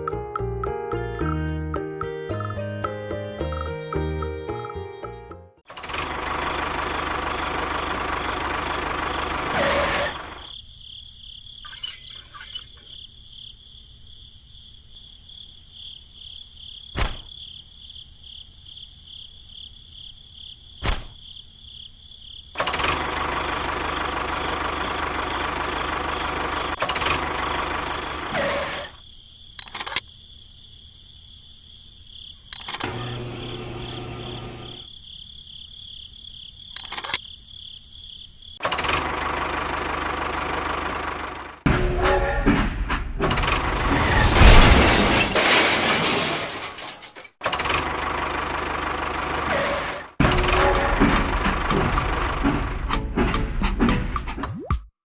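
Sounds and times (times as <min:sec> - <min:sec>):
small machine rattling and whining: 0:32.6 - 0:34.9
sharp clicks: 0:36.8 - 0:37.2.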